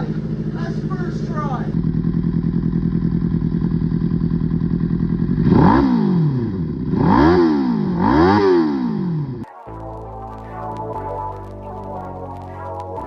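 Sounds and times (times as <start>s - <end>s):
motorcycle engine idling and revving: 0.0s - 9.5s.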